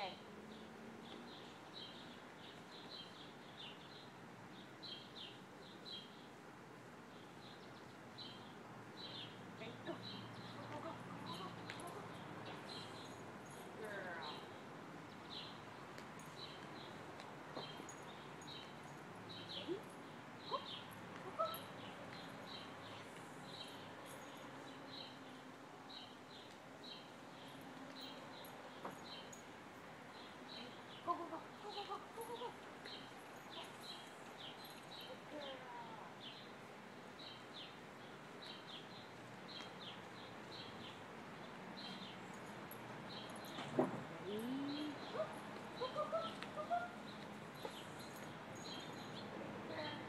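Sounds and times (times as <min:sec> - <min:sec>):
bird chirping: 0:07.1 - 0:13.2, 0:37.2 - 0:50.0.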